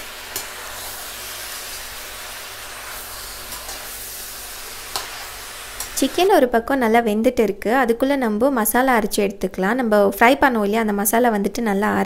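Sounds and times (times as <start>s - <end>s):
chicken sizzling in oil: 0.0s - 6.4s.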